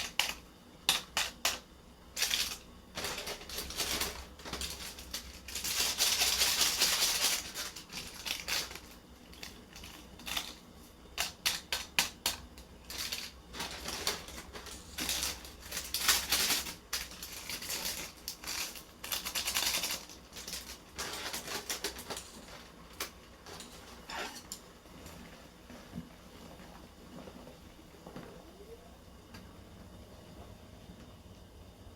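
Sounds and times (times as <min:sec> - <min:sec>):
objects clicking and clattering: 0:00.0 - 0:25.2.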